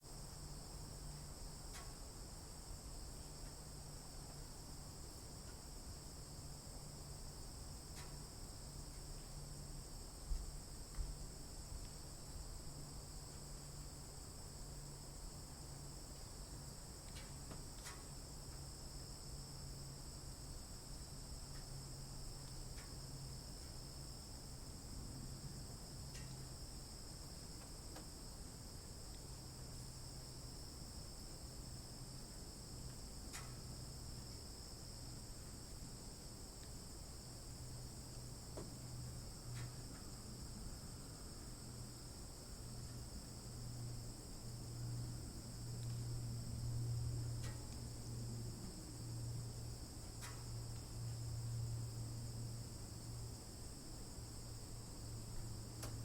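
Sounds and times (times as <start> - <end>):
faint low hum: 0.0 - 56.0
soft ticks: 1.7 - 2.0, 7.9 - 8.2, 17.0 - 18.6, 22.4 - 23.0, 26.1 - 26.4, 32.9 - 33.6, 39.5 - 40.1, 47.4 - 47.8, 50.1 - 50.9.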